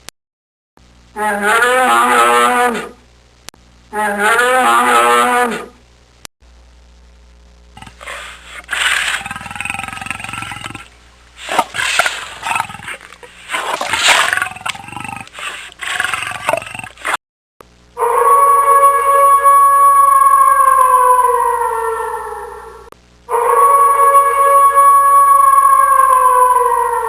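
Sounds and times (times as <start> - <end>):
big cat growling and roaring: 7.8 - 17.2.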